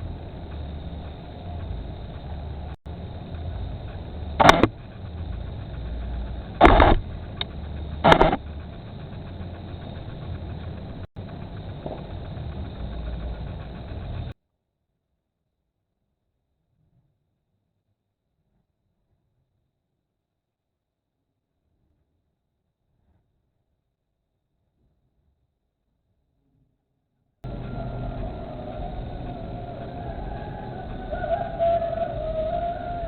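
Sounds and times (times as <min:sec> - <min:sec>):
low rumble: 0:00.0 - 0:14.4, 0:27.5 - 0:33.0.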